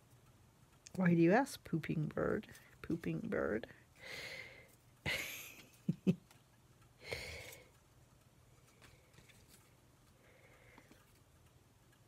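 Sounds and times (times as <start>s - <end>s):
light ticks of handling: 4.6s - 12.0s.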